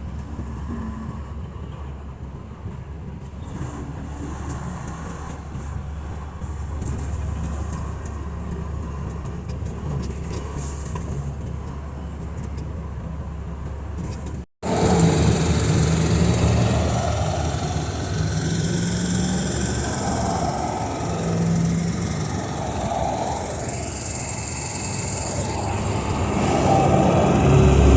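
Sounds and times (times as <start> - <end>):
road noise: 13.2 - 27.9
steady hum: 14.6 - 27.9
truck engine rumbling: 14.6 - 27.9.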